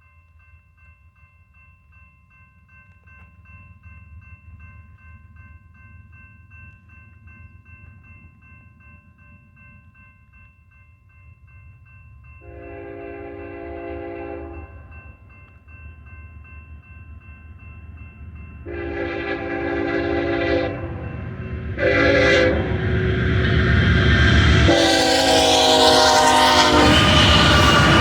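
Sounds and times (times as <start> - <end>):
freight train rumble: 11.4 - 28.0
locomotive air horn blasts: 12.4 - 14.8, 18.7 - 23.8, 24.6 - 28.0.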